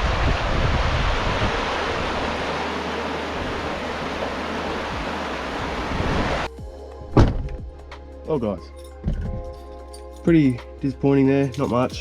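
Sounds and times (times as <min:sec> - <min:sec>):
river water rushing: 0:00.0 - 0:06.5.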